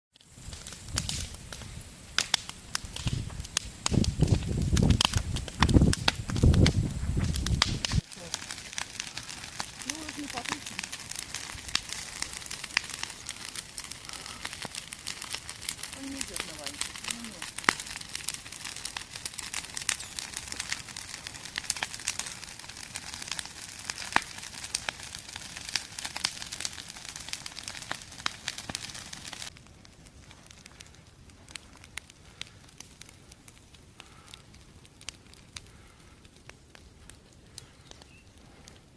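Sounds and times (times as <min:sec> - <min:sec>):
campfire crackling and popping: 0:00.1 - 0:38.9
steady fire hiss: 0:00.2 - 0:38.9
logs snapping: 0:02.2 - 0:29.5.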